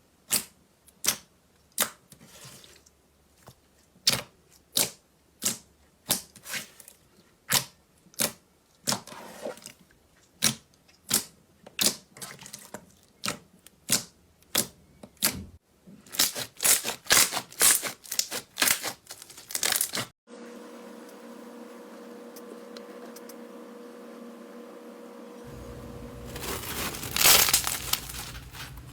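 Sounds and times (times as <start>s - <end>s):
steady low hum: 21.2s - 28.9s.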